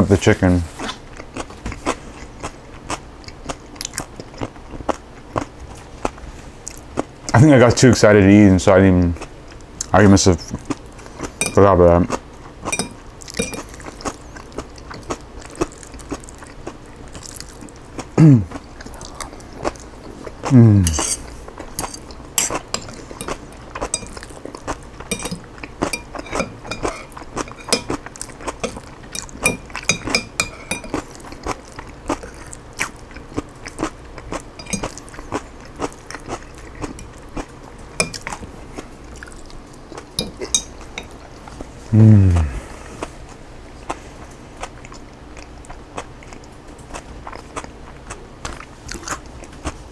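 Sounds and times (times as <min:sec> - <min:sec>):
chewing and crunching food: 0:00.0 - 0:07.8, 0:08.7 - 0:49.9
cutlery clinking on dish: 0:11.4 - 0:11.6, 0:12.7 - 0:13.8, 0:20.8 - 0:24.2, 0:25.1 - 0:31.0, 0:34.6 - 0:35.0, 0:38.0 - 0:38.4, 0:40.2 - 0:41.2.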